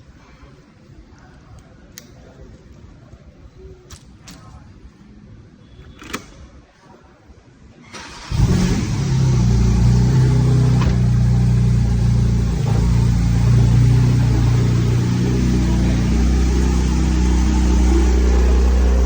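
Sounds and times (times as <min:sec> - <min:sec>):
car engine starting and idling: 0:07.8 - 0:19.0.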